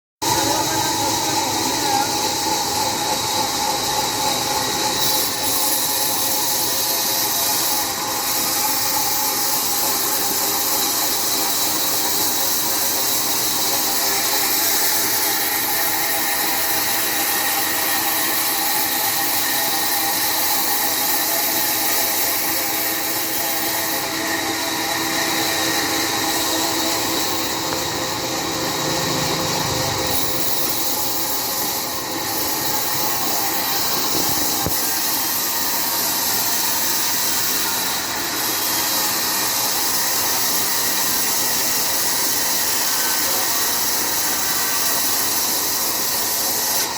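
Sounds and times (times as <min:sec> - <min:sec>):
sawmill saw cutting log: 0:00.2 - 0:46.9.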